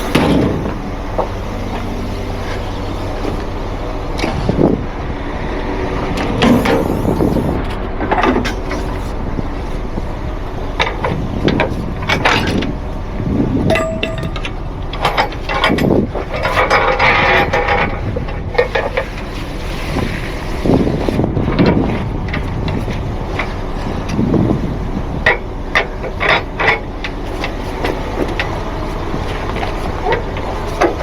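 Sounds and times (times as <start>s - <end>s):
truck engine running: 0.0s - 31.0s
metallic clanks and rattles: 10.8s - 13.0s, 13.6s - 19.3s, 25.2s - 31.0s.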